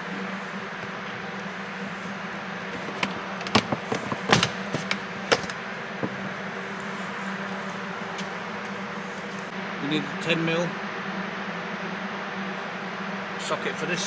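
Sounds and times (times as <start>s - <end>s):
hand tools clicking and knocking: 0.0s - 9.5s.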